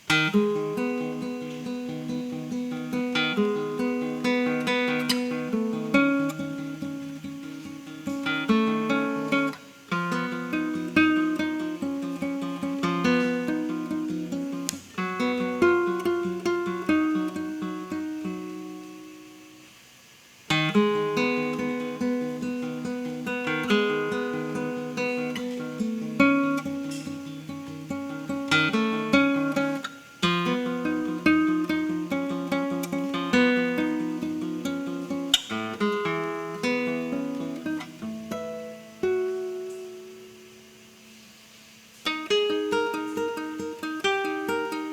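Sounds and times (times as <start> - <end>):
solo acoustic guitar: 0.0 - 44.9.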